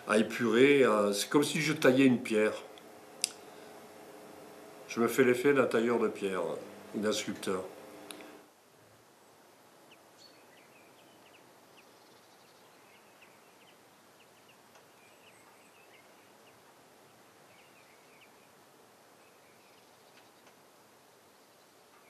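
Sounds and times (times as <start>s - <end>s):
steady hiss: 0.0s - 9.8s
small birds chirping: 9.9s - 18.6s, 19.2s - 22.0s.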